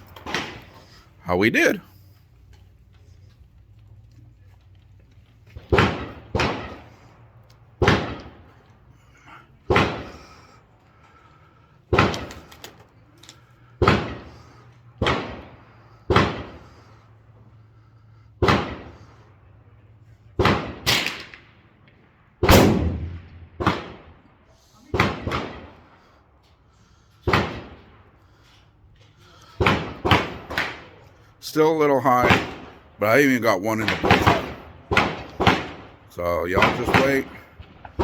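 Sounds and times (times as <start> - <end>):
gunshots with echo: 5.6 - 7.2, 7.8 - 8.5, 9.7 - 10.4, 13.8 - 16.8, 18.4 - 19.1, 20.4 - 21.6, 22.4 - 24.2, 24.9 - 26.0, 29.6 - 31.0, 31.6 - 38.0.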